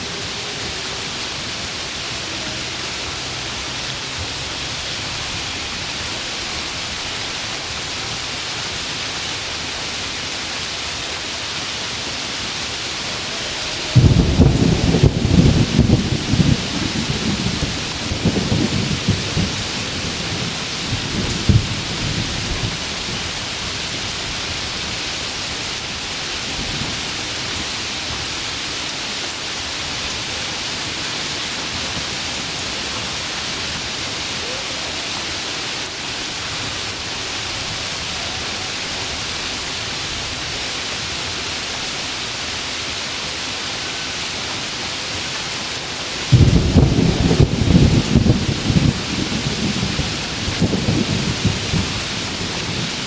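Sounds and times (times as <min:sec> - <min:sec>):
heavy rain falling: 0:00.0 - 0:53.0
low thunder rumbling: 0:13.3 - 0:24.9, 0:46.3 - 0:53.0.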